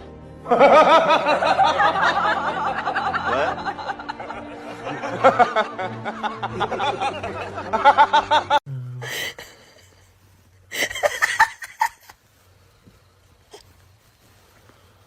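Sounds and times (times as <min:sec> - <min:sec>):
rapid rhythmic laughter: 0:00.5 - 0:10.1, 0:10.7 - 0:12.2.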